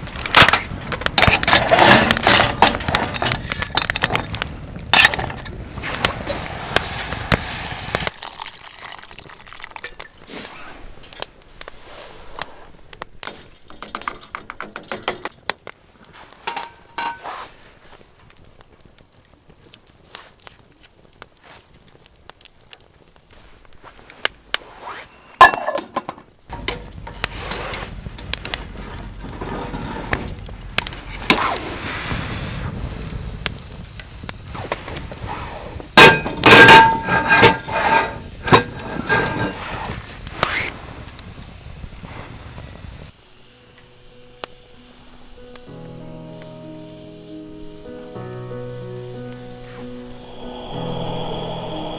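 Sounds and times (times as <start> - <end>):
utensils and cookware clinking: 16.4 - 17.4, 25.4 - 28.4, 36.0 - 39.7.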